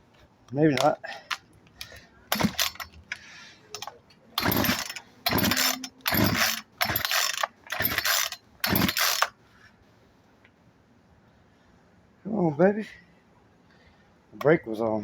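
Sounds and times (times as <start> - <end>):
chainsaw recoil starter pulls: 0.8 - 9.3.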